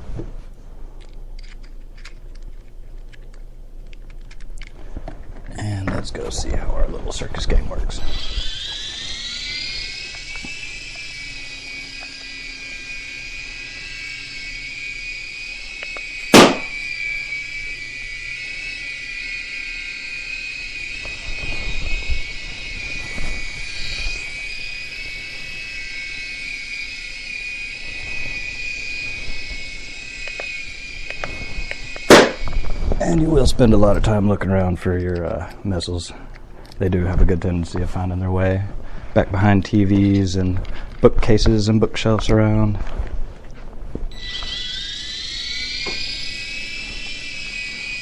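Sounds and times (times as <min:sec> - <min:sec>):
toy helicopter motors whining: 0:01.0 - 0:04.8, 0:05.4 - 0:38.6, 0:39.4 - 0:42.7, 0:44.1 - 0:48.0
balloon pop: 0:16.4 - 0:16.8, 0:32.1 - 0:32.5.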